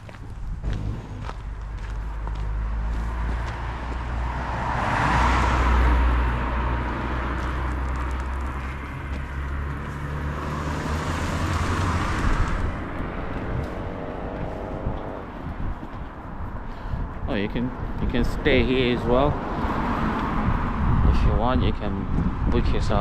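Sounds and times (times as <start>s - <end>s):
steady low rumble: 0.0s - 4.5s, 11.6s - 19.4s
vehicles passing by: 0.0s - 23.0s.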